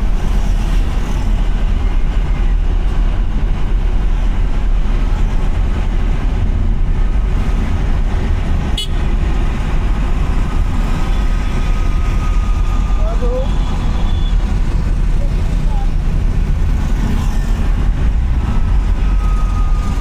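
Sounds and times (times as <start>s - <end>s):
car driving on wet road: 4.5s - 20.0s.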